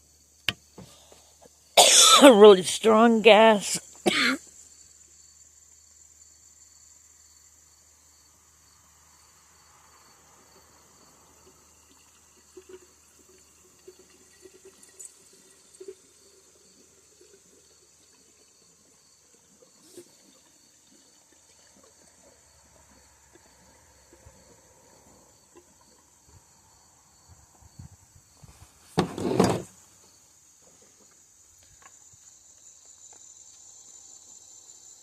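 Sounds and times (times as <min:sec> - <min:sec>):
crickets chirping: 0:00.0 - 0:35.0
fuel pouring into tank: 0:09.8 - 0:26.9.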